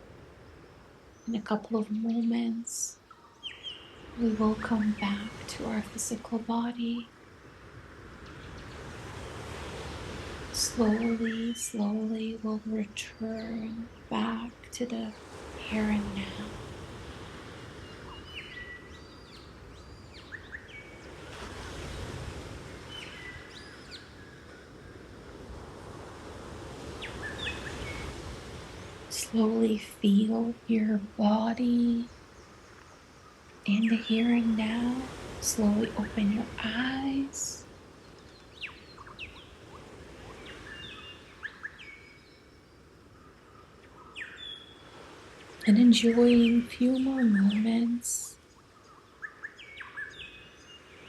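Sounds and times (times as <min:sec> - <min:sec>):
low steady hiss: 0:00.0 - 0:51.0
ocean waves washing: 0:00.0 - 0:51.0
tropical birds chirping: 0:00.2 - 0:51.0.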